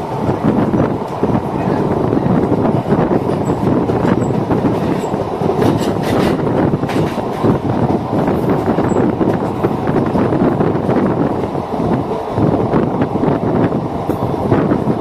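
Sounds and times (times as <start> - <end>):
train wheels rumbling on rail: 0.0 - 15.0
sharp clacks of train wheels: 2.3 - 12.5.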